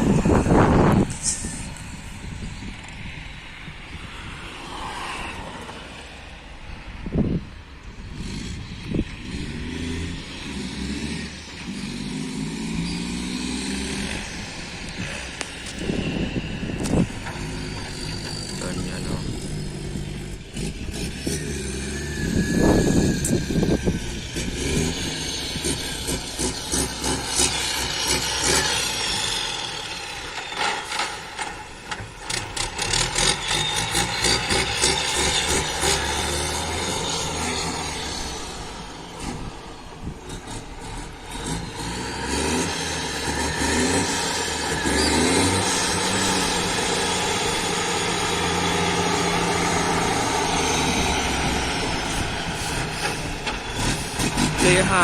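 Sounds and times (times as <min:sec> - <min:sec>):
diesel truck engine under load: 0:00.0 - 0:55.0.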